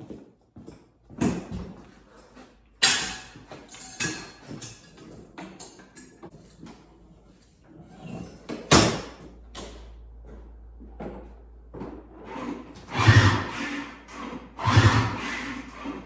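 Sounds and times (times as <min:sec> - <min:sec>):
rough engine burst: 0:12.9 - 0:16.0.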